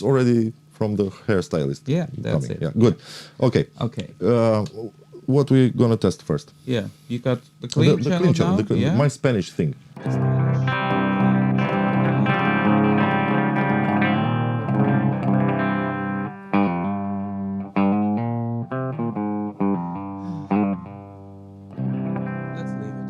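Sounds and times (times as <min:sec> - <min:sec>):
clean electric guitar chords: 0:07.8 - 0:09.0, 0:10.0 - 0:23.0.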